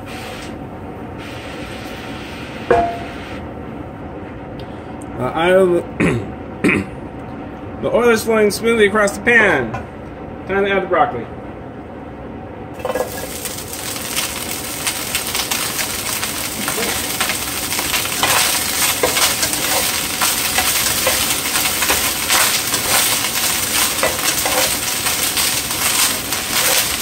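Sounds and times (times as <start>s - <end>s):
vegetables sizzling in hot oil: 12.8s - 27.0s.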